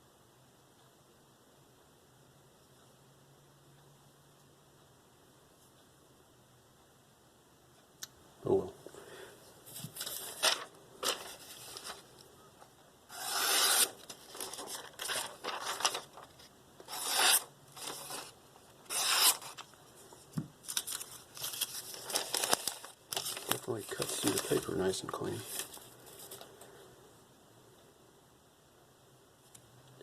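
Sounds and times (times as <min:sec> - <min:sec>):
knife slicing paper: 0:13.1 - 0:16.2, 0:16.9 - 0:19.6.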